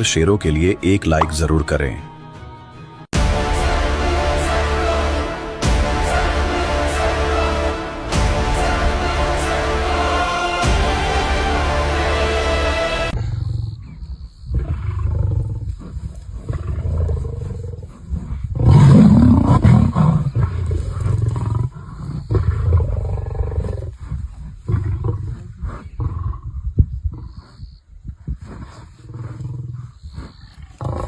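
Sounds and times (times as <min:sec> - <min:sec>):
lions growling: 0:13.1 - 0:31.0.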